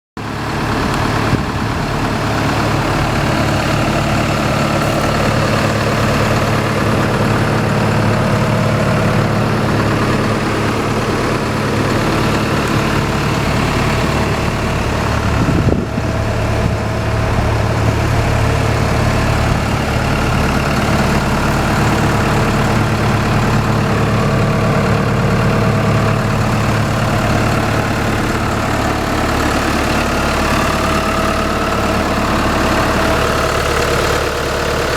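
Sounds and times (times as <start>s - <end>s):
diesel engine idling: 0.2s - 34.9s.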